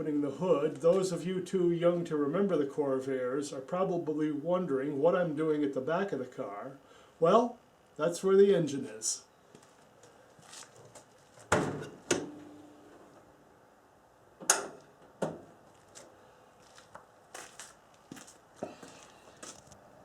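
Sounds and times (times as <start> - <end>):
engine lid clunks and clicks: 14.4 - 15.5.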